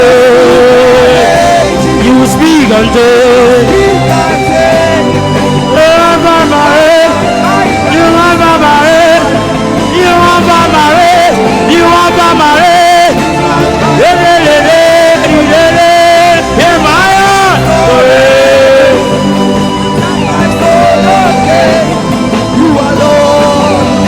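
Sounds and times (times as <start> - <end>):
live gospel band music: 0.0 - 24.0
wavering wordless singing: 0.0 - 24.0.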